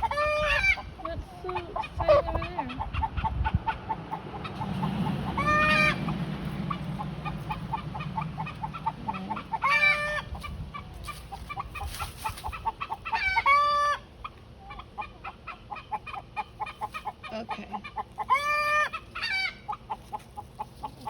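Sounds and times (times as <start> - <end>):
roosters crowing: 0.0 - 1.0, 3.7 - 14.2, 18.2 - 20.5
chickens clucking rapidly: 0.0 - 21.0.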